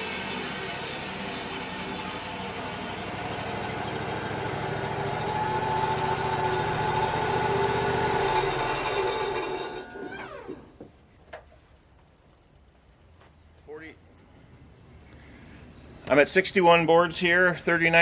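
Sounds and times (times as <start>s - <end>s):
bandsaw sawmill running: 0.0s - 10.7s.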